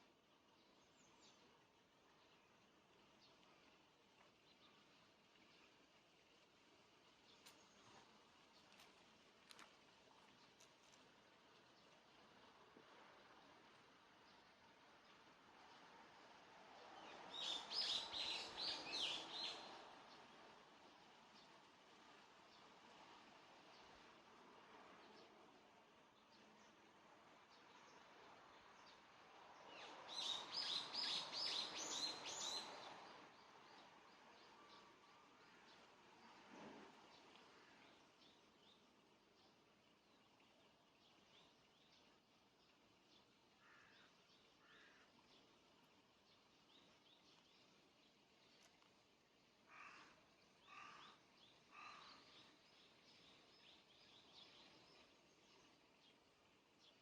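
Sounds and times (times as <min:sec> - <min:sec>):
soft steady wind: 0:00.0 - 0:57.0
faint bird chirps: 0:49.7 - 0:55.0.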